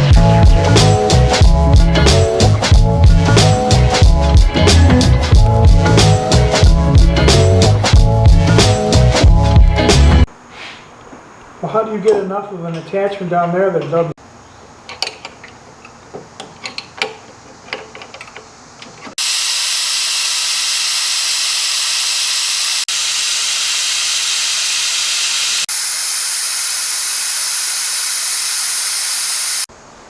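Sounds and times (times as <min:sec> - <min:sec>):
compressed air hissing: 0:10.4 - 0:11.0, 0:19.2 - 0:29.7
hand tools clicking and knocking: 0:14.8 - 0:19.2.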